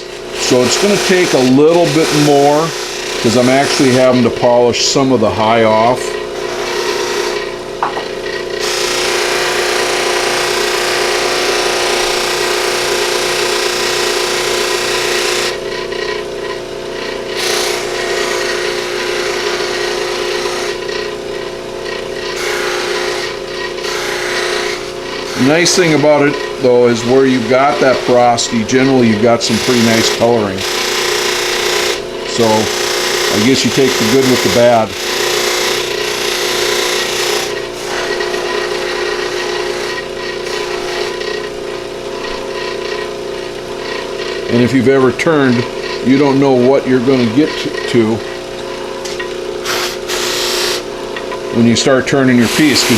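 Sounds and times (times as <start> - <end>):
antler rubbing on buffing wheel: 0.0 - 7.5, 22.3 - 41.5, 51.5 - 52.9
buffing wheel motor humming: 0.0 - 52.9.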